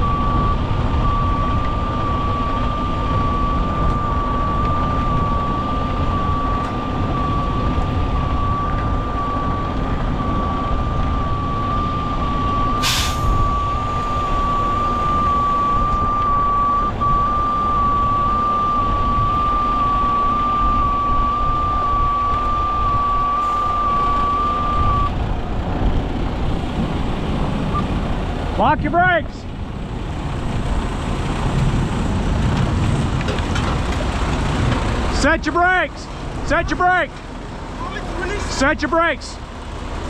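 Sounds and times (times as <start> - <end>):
truck backup alarm: 0.0 - 26.5
diesel truck engines running: 0.0 - 40.0
air brake release burst: 12.8 - 13.4.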